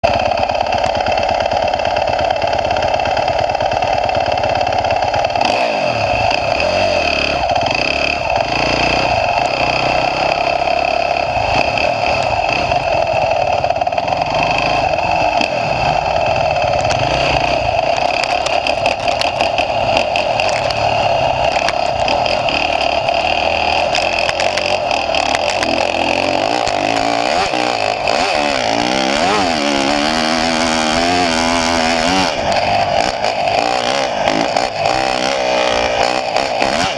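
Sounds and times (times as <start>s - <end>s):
dirt bike engine revving: 0.0s - 36.9s.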